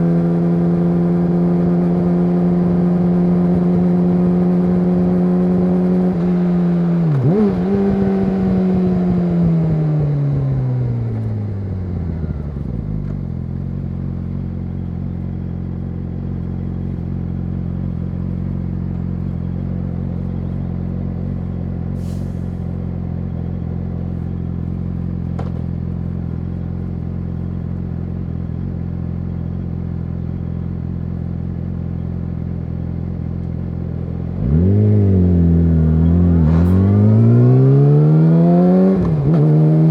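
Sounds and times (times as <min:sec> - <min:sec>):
motorcycle engine slowing to idle: 0:11.0 - 0:34.6.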